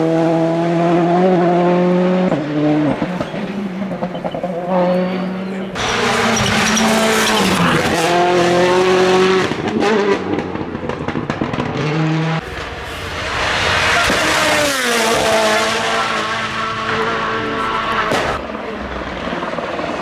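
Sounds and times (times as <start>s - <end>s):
rally car engines revving: 0.0s - 10.6s, 11.4s - 20.0s
car engine passing by: 2.2s - 9.6s, 12.4s - 20.0s
tyre squeal: 2.6s - 9.0s, 12.4s - 20.0s.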